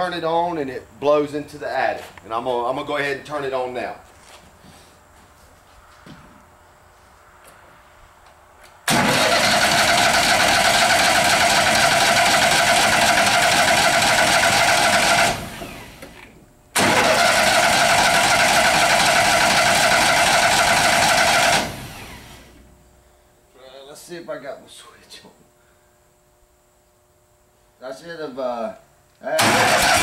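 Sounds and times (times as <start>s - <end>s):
blower whirring rush: 8.8s - 22.6s.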